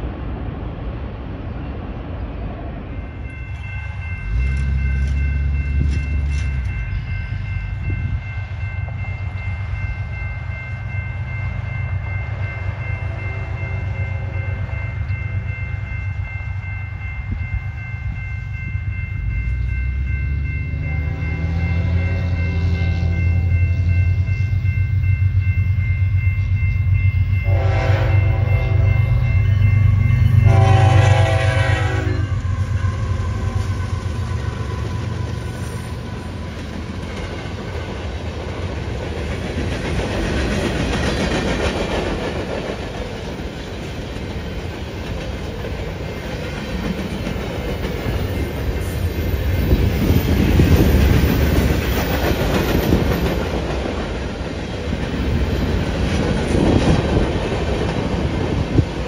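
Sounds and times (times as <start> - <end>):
locomotive horn blasts: 27.4 - 29.2, 30.3 - 32.7
train wheels clacking on rail joints: 32.4 - 59.0.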